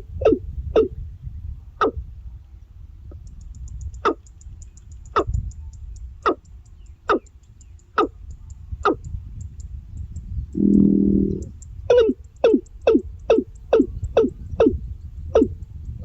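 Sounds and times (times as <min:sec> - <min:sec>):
low rumble: 0:10.5 - 0:11.6
bird call dropping in pitch: 0:10.6 - 0:11.5.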